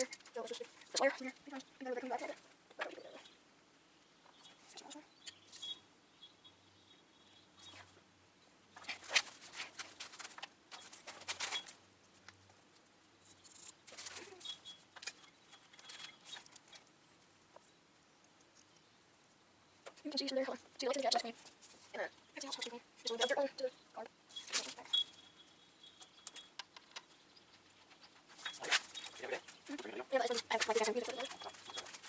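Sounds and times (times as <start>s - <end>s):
scraping rustles: 8.8s - 17.6s, 24.3s - 32.0s
small metal parts clicking: 13.2s - 16.9s.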